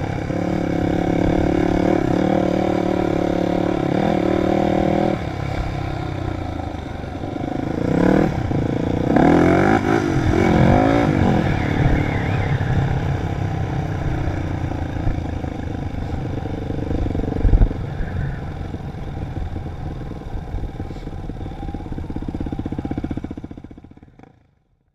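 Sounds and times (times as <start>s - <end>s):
dirt bike engine revving: 0.0s - 24.3s.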